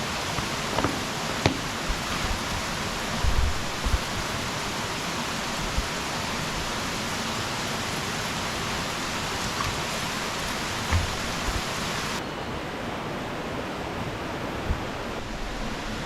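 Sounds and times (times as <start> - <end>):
flooding stream rushing: 0.0 - 12.2
heavy rain: 0.0 - 12.2.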